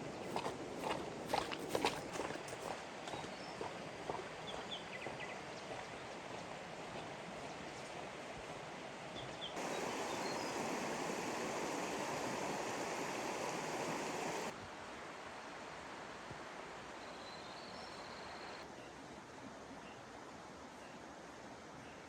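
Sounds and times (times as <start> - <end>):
floodwater rushing: 9.6 - 14.6.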